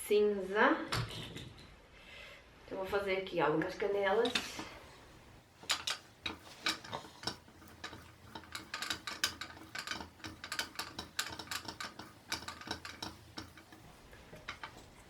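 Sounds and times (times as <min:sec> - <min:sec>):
bobbin winder clicking and rattling: 0:04.1 - 0:15.0.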